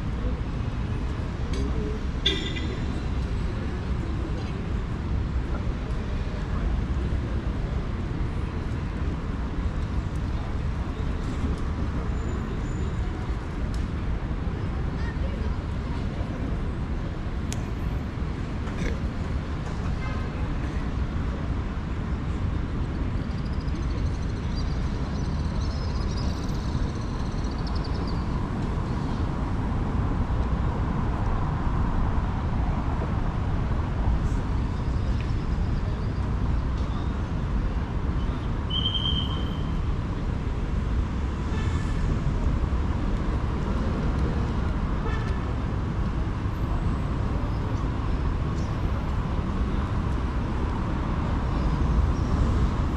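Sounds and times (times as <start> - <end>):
traffic rumble: 0.0 - 52.9.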